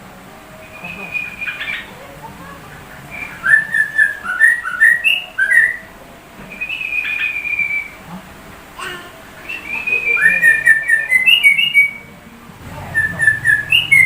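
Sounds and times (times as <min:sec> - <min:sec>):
bird singing whistled phrases: 0:00.6 - 0:01.9, 0:03.1 - 0:05.9, 0:06.5 - 0:08.0, 0:09.4 - 0:12.1, 0:12.9 - 0:14.0.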